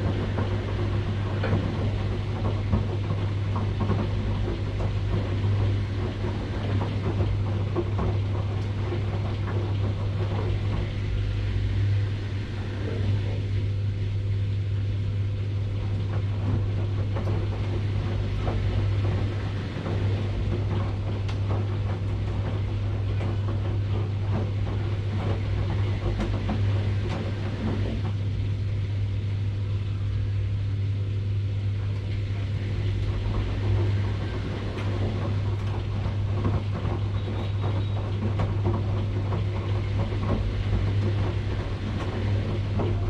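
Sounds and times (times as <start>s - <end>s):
faint knocks and rattles: 0.0s - 11.4s, 31.9s - 43.0s
washing machine running: 0.0s - 43.0s.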